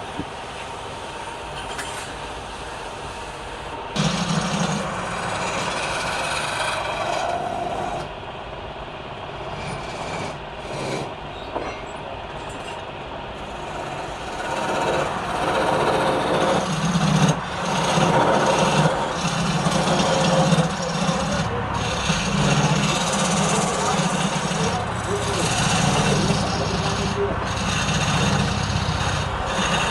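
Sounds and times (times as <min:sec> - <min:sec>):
wood lathe running: 0:03.2 - 0:08.1, 0:09.5 - 0:11.1, 0:13.4 - 0:29.9
turning tool cutting wood: 0:04.0 - 0:08.1, 0:09.5 - 0:11.1, 0:13.4 - 0:29.9.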